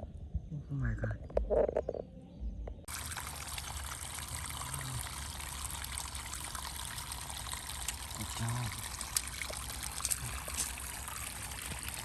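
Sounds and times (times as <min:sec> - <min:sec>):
water trickling: 0:02.9 - 0:12.0.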